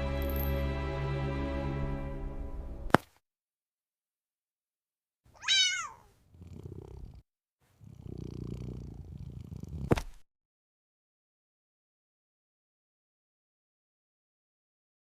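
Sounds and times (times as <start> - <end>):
cat meowing: 5.4 - 7.1
cat purring: 5.8 - 10.2.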